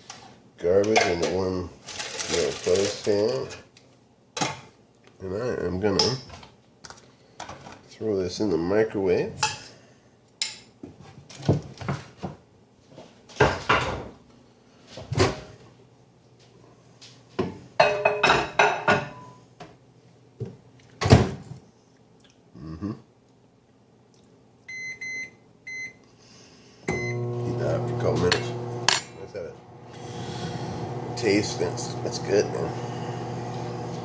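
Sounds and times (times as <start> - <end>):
microwave keypad beeps: 24.7 - 26.0, 26.9 - 27.2.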